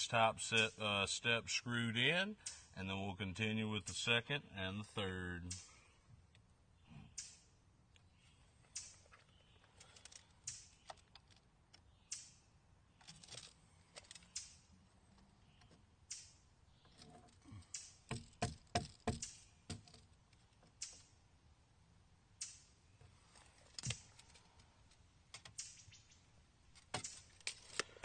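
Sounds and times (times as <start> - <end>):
wooden boards and screws rustling: 8.6 - 11.9, 12.9 - 21.2, 23.0 - 25.8, 26.6 - 28.0
sharp knocks on wood: 18.1 - 19.9.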